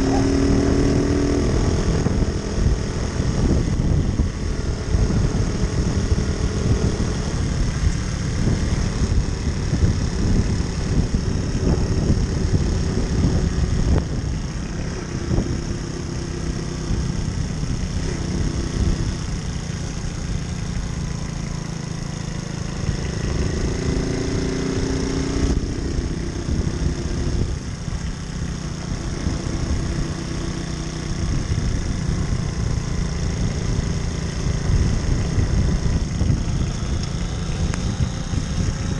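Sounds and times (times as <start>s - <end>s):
heavy low rumble: 0.0s - 21.6s, 31.0s - 38.9s
moped engine running: 0.0s - 38.9s.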